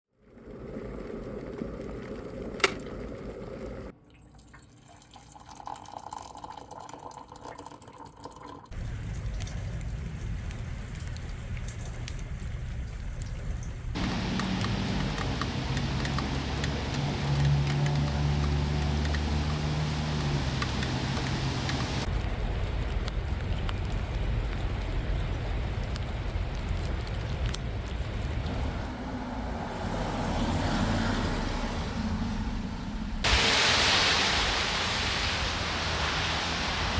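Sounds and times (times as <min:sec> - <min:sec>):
rain dripping and pattering: 0:00.2 - 0:03.9, 0:08.7 - 0:31.6, 0:33.2 - 0:36.9
rumble of passing traffic: 0:08.8 - 0:36.9.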